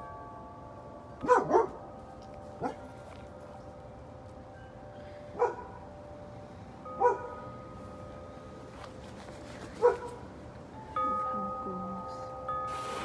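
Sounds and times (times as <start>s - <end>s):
wind chimes ringing: 0.0s - 8.7s, 10.7s - 13.0s
dog barking: 1.2s - 1.8s, 5.4s - 5.7s, 7.0s - 7.3s, 9.8s - 10.2s.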